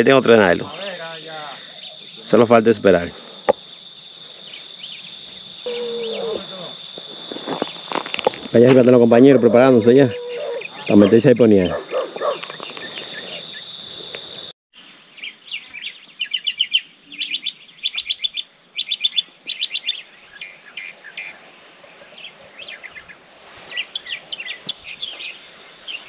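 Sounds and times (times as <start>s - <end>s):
songbirds trilling: 0.0s - 26.0s
faint high whine: 5.4s - 8.5s.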